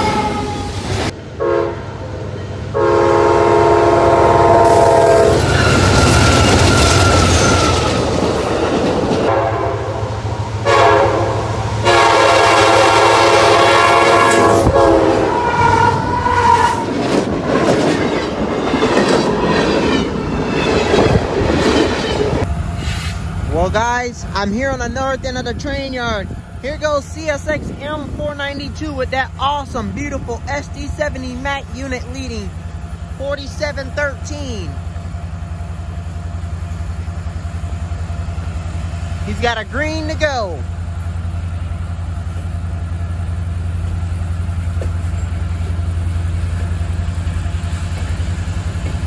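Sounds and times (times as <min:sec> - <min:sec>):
locomotive horn blasts: 0:01.4 - 0:02.0, 0:02.7 - 0:06.5, 0:09.3 - 0:16.8
freight cars rumbling and clattering: 0:05.4 - 0:09.3, 0:15.8 - 0:49.0.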